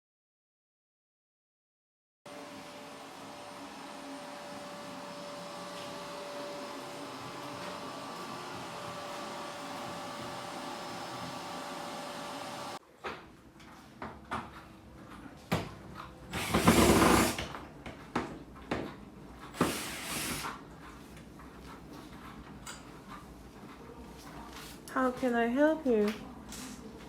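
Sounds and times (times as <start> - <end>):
vacuum cleaner running: 2.3 - 12.8, 16.3 - 17.5, 19.6 - 20.6.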